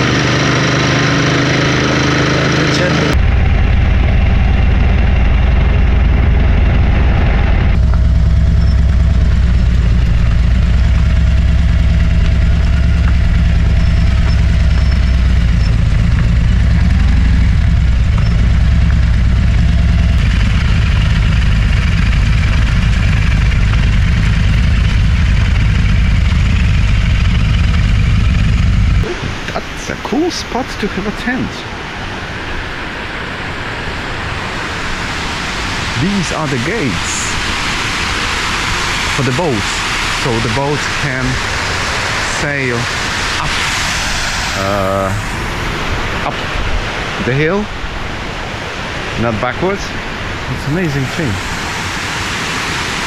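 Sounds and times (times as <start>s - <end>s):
motorcycle engine running: 0.0s - 29.6s, 34.6s - 46.2s
riding wind noise: 0.0s - 53.0s.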